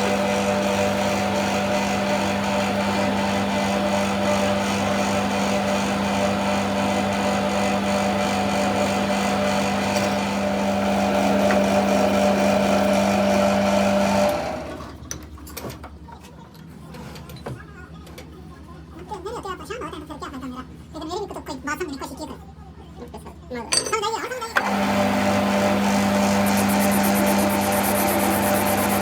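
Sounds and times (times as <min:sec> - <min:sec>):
shop machine motor running: 0:00.0 - 0:14.9, 0:24.5 - 0:29.0.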